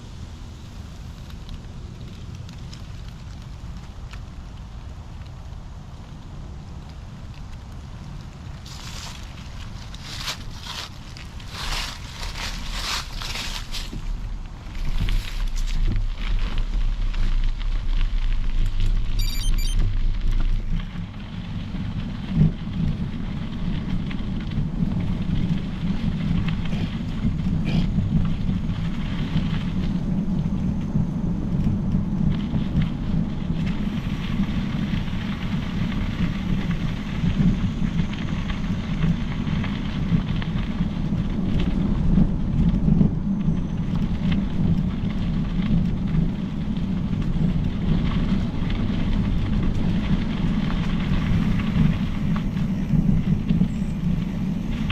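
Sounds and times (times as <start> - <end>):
bike tyres rolling: 0.0 - 54.9
air rushing over microphone: 19.8 - 43.2, 46.4 - 54.9.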